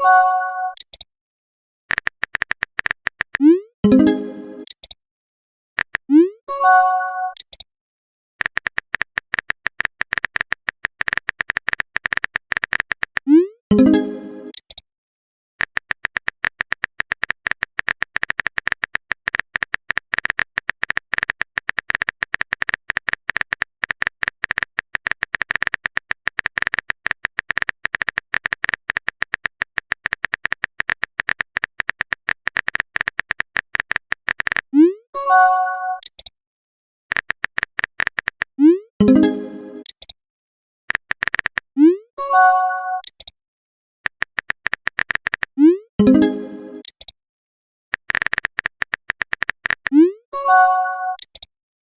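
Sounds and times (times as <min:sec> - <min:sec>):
keyboard typing clicks: 0:00.7 - 0:01.1, 0:01.9 - 0:05.0, 0:05.8 - 0:06.3, 0:07.3 - 0:07.7, 0:08.4 - 0:14.8, 0:15.6 - 0:34.7, 0:35.9 - 0:36.3, 0:37.1 - 0:40.2, 0:40.9 - 0:41.7, 0:43.0 - 0:43.4, 0:44.0 - 0:47.2, 0:47.9 - 0:51.5
rising message alert tones: 0:03.4 - 0:04.7, 0:13.3 - 0:14.5, 0:38.6 - 0:39.9, 0:45.6 - 0:46.8.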